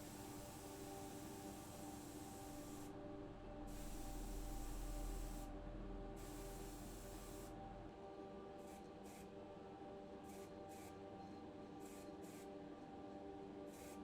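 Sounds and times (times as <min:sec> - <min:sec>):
compressed air spraying: 0:00.0 - 0:02.9, 0:03.7 - 0:05.5.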